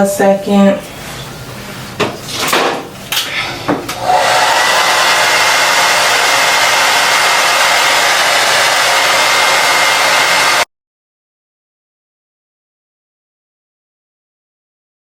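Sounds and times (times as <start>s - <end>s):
hair dryer running: 3.8s - 10.7s.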